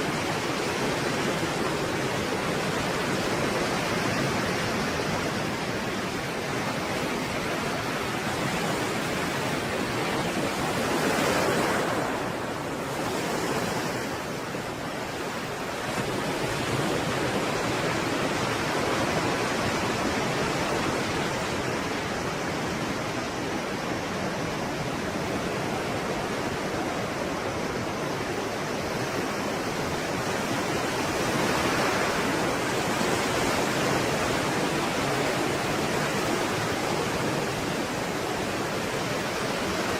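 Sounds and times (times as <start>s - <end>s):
stormy sea waves breaking: 0.0s - 39.9s.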